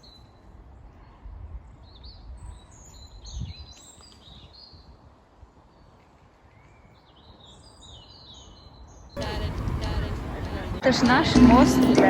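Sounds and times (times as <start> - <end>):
small birds chirping: 7.0 - 10.8.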